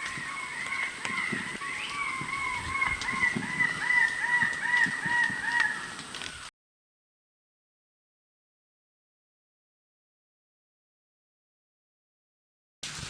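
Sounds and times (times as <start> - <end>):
bird calling repeated notes: 0.0 - 6.5.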